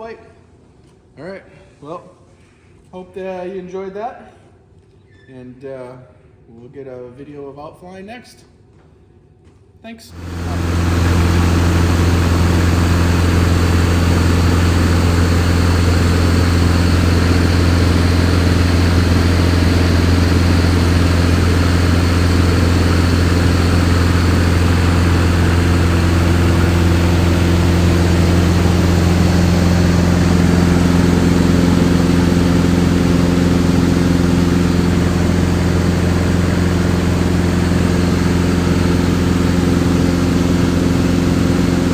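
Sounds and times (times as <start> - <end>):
machine humming: 10.2 - 41.9.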